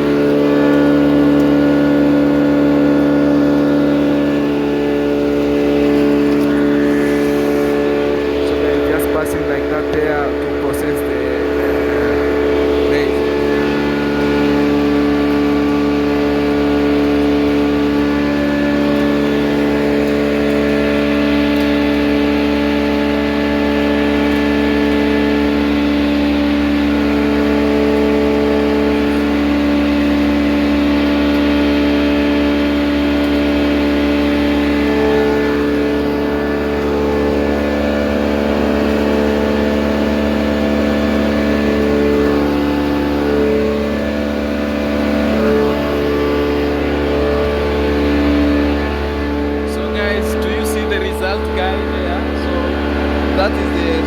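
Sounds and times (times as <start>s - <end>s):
grinding mill droning: 0.0s - 54.0s.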